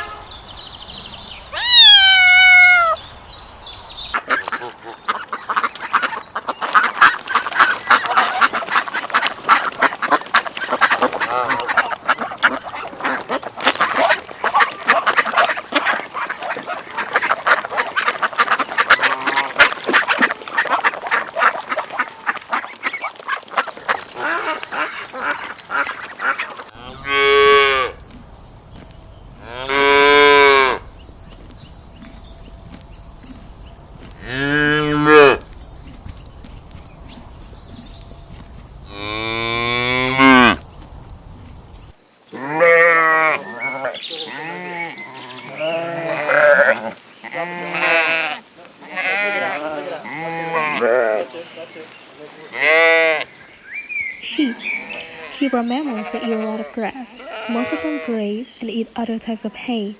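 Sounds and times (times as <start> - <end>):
waterfowl flock honking: 4.1 - 27.9, 42.4 - 53.4
cow mooing: 38.9 - 40.6, 42.4 - 51.3.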